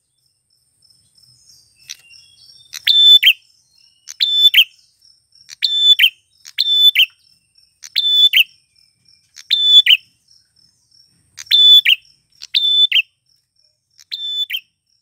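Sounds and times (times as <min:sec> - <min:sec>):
bird singing whistled phrase: 0:01.6 - 0:04.8, 0:05.6 - 0:07.2, 0:07.8 - 0:08.6, 0:09.4 - 0:10.1, 0:11.4 - 0:13.1, 0:14.0 - 0:14.7.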